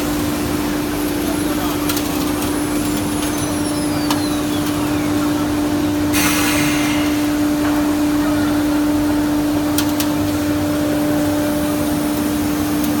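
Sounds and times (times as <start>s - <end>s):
burst of hiss: 6.1s - 7.4s.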